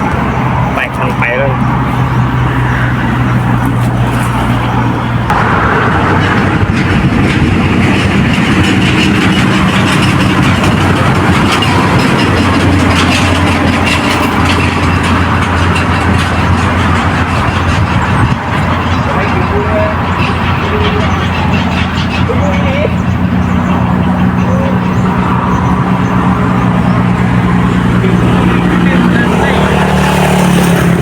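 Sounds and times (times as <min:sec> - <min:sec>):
vehicle engine humming: 0:00.0 - 0:31.0.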